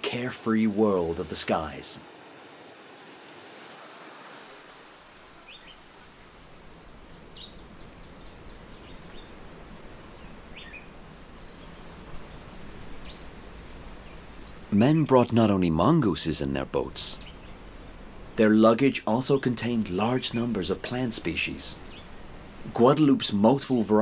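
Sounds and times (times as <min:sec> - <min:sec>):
soft background hiss: 0:00.0 - 0:24.0
bird chirps: 0:05.1 - 0:24.0.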